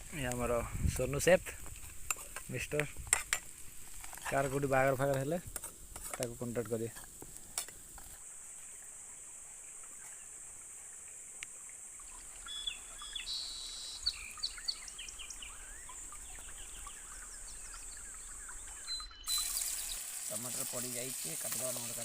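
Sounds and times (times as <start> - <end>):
birds chirping: 12.0 - 21.8.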